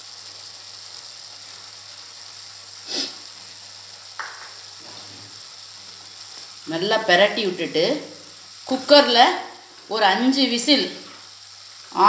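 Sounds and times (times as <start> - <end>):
meat and onions sizzling: 0.0 - 12.0
short hissy puff: 2.8 - 3.3, 4.8 - 5.4.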